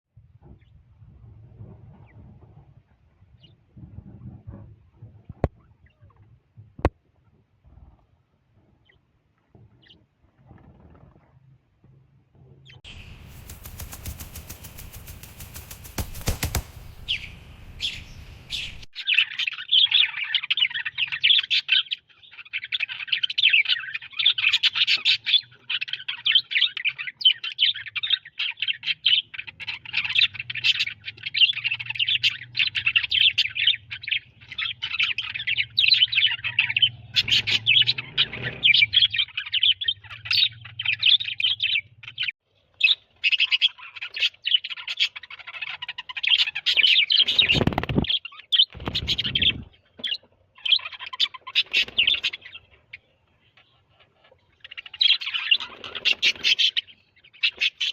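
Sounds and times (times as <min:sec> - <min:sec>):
parakeet chattering and chirping: 0:42.8 - 0:52.7, 0:53.6 - 0:57.9.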